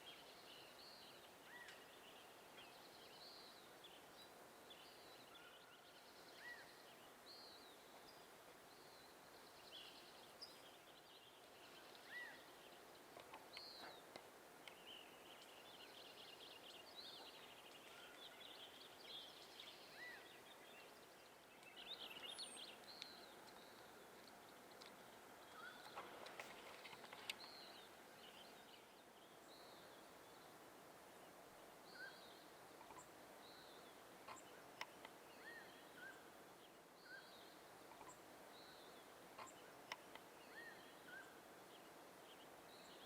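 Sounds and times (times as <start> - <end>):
outdoor background hiss: 0.0 - 43.0
birds chirping and singing: 0.1 - 30.5.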